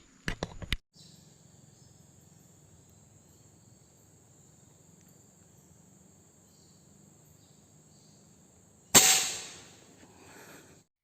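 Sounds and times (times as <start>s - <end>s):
insects chirring: 1.0s - 10.8s
air rifle shot: 9.0s - 9.8s.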